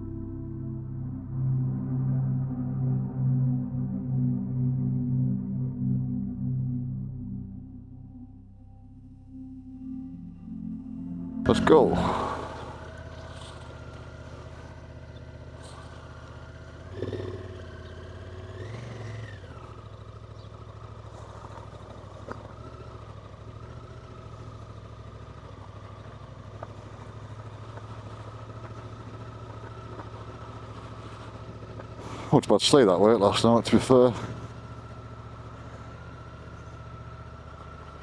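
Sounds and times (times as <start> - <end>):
motorcycle engine revving: 11.5 - 38.0.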